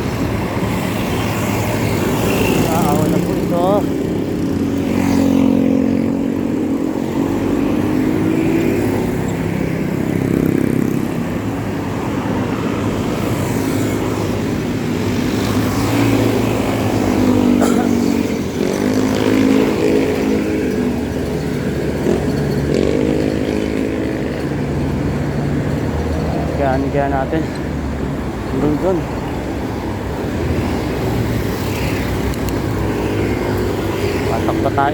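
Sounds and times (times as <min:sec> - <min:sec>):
passing motorcycles and cars: 0:00.0 - 0:34.9
engine revving: 0:15.1 - 0:27.4.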